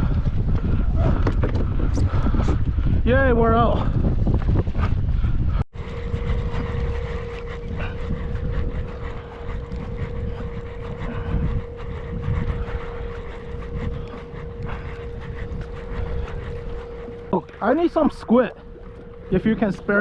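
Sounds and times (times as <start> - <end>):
wind buffeting microphone: 0.0 - 20.0
steady hum: 5.2 - 20.0.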